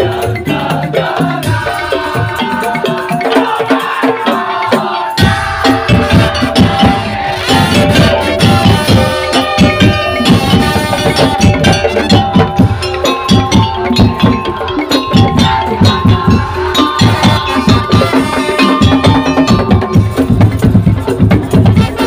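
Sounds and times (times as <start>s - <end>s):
percussion ensemble playing: 0.0s - 22.0s
melodic line: 5.2s - 21.6s.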